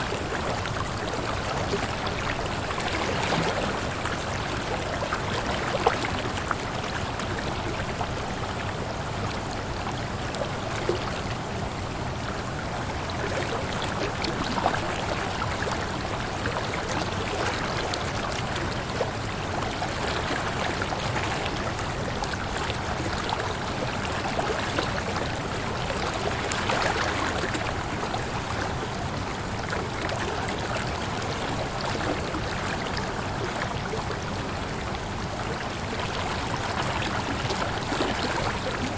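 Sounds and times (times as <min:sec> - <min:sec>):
water splashes: 0:29.7 - 0:38.9.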